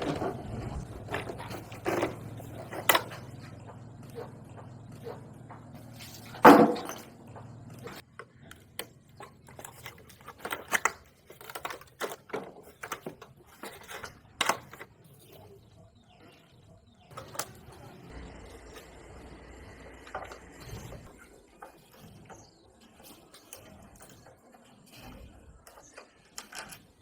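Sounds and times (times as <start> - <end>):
small clicks and knocks of tools: 4.9 - 15.4, 21.6 - 27.0.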